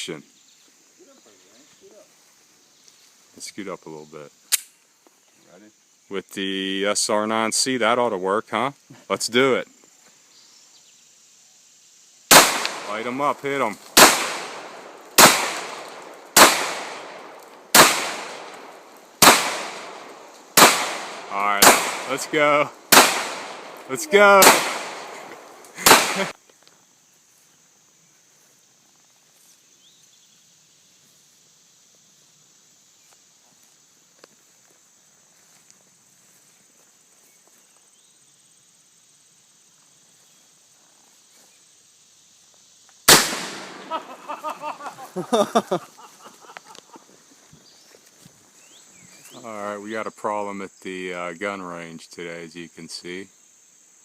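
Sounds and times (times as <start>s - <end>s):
crickets chirping: 0.0s - 54.0s
pistol shots with echo: 12.3s - 13.2s, 14.0s - 26.3s, 43.1s - 44.0s.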